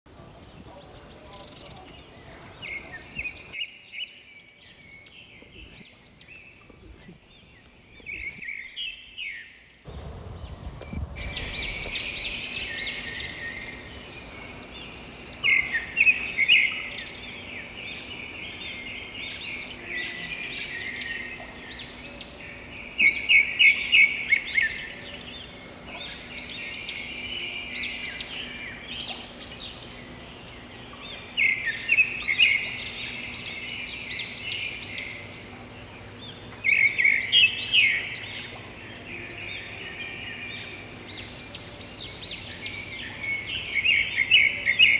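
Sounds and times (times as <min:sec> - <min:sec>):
birds singing and chirping: 0:00.1 - 0:44.9
steady high hiss: 0:04.7 - 0:08.4.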